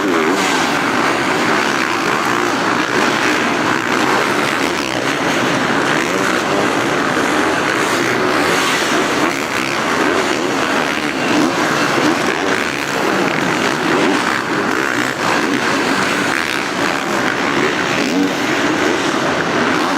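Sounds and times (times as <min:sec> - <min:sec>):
dirt bike engines revving: 0:00.0 - 0:19.9.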